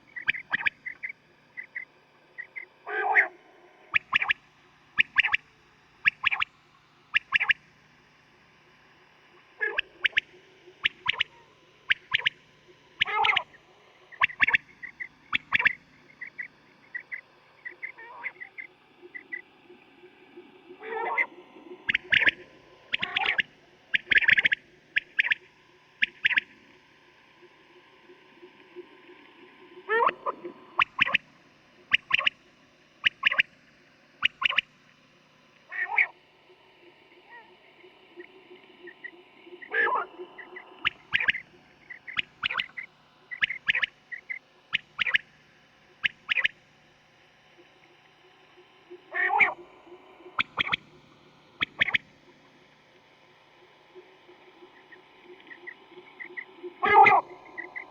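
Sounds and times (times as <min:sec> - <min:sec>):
faint steady hum: 0:00.0 - 0:57.9
quail calling: 0:02.4 - 0:03.3, 0:10.8 - 0:12.3, 0:13.0 - 0:13.5, 0:14.2 - 0:19.4, 0:20.8 - 0:21.3, 0:21.9 - 0:25.4, 0:30.8 - 0:31.2, 0:31.9 - 0:32.3, 0:34.3 - 0:34.6, 0:35.7 - 0:36.1, 0:38.2 - 0:45.3, 0:46.0 - 0:46.5, 0:49.1 - 0:49.7, 0:50.4 - 0:50.8, 0:51.6 - 0:52.0, 0:54.7 - 0:57.9.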